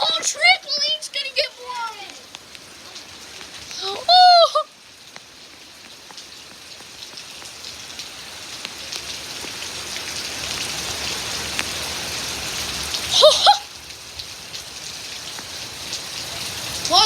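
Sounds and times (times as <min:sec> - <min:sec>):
wind-driven rain: 0:00.0 - 0:17.0
person crying out: 0:03.8 - 0:04.8, 0:13.1 - 0:13.7.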